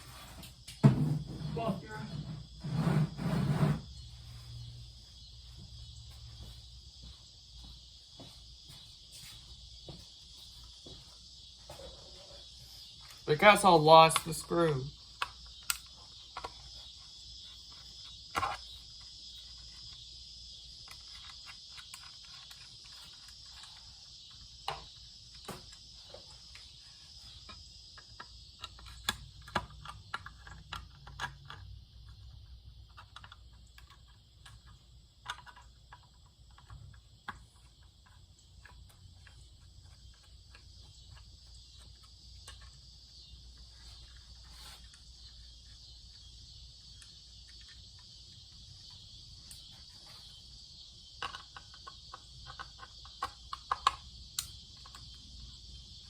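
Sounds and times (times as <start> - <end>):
small clicks and knocks of parts: 14.1 - 50.4, 51.0 - 56.0.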